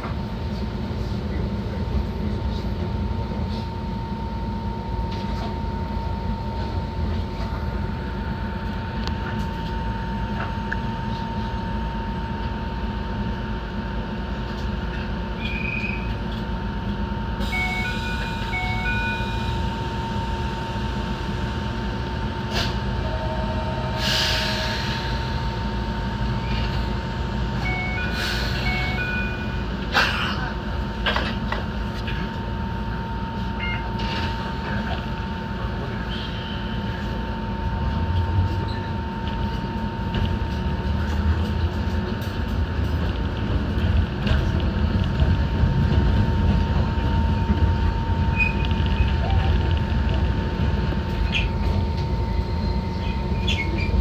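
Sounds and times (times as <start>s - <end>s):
electric train running: 16.4s - 29.9s, 36.7s - 54.0s.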